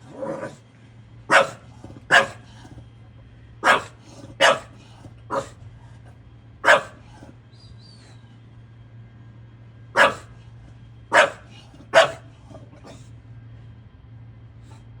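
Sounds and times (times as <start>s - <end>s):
dog barking: 1.3s - 2.8s, 3.6s - 5.6s, 6.6s - 7.4s, 9.9s - 10.4s, 11.1s - 13.1s.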